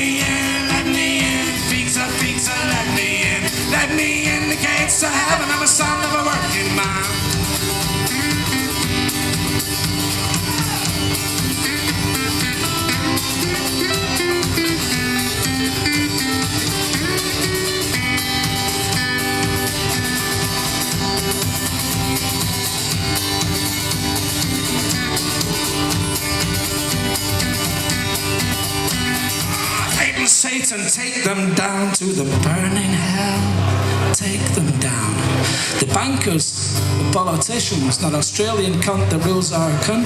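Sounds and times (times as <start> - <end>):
live band playing instrumental: 0.0 - 30.4
lead guitar: 0.0 - 40.0.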